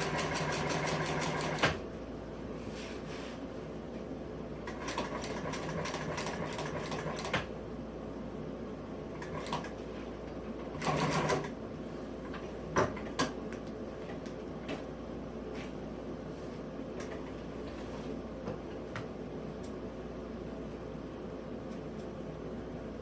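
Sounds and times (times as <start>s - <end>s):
sewing machine stitching: 0.0s - 1.8s, 10.7s - 11.6s.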